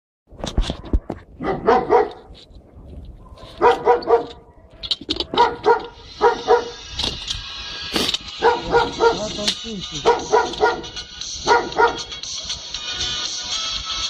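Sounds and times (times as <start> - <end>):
dog barking: 1.4 - 2.3, 3.2 - 6.8, 8.4 - 12.7.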